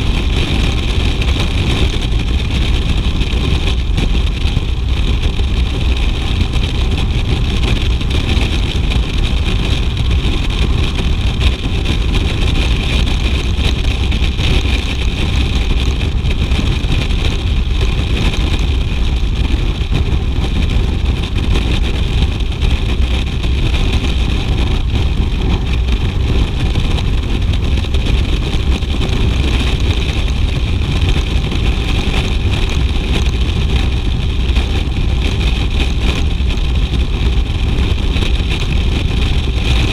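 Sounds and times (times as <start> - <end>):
motorcycle engine rumbling: 0.0 - 39.9.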